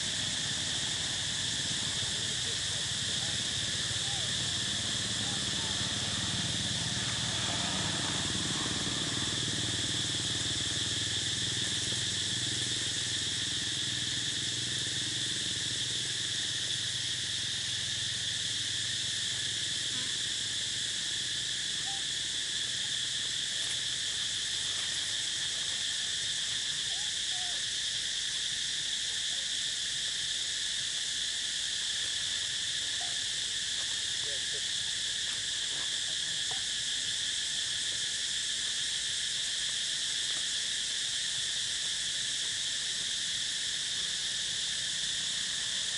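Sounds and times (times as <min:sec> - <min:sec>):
insect chorus buzzing: 0:00.0 - 0:45.9.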